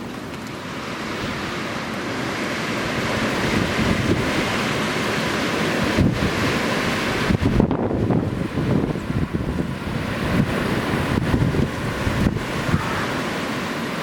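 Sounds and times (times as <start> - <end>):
wind buffeting the microphone: 3.0 - 4.8, 5.7 - 13.3.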